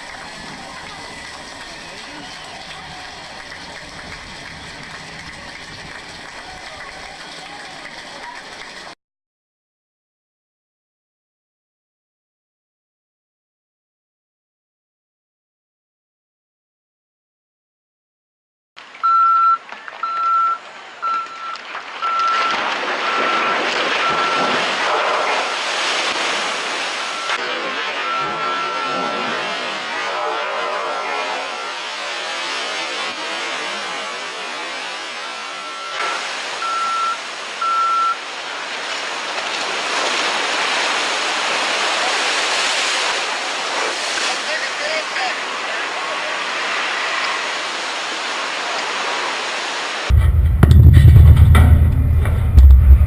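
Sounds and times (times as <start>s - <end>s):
rushing machinery or wind noise: 0.0s - 9.0s, 50.1s - 53.0s
rushing noise: 0.0s - 9.0s, 21.8s - 53.0s
reversing warning beeper: 19.0s - 24.6s, 27.0s - 27.4s, 28.0s - 29.2s, 35.2s - 38.2s.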